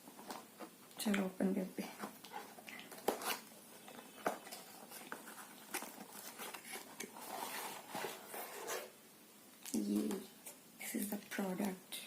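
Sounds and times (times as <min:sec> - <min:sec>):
packaging rustling: 0:01.9 - 0:08.9
packaging clicks and crinkles: 0:02.2 - 0:08.3.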